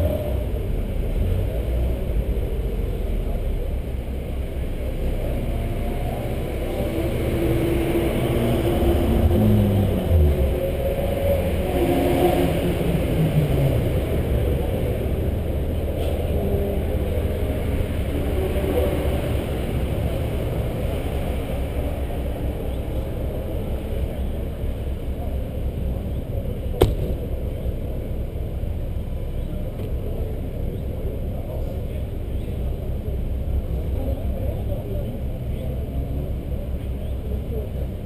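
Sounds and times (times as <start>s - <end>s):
car engine idling: 13.8s - 38.0s.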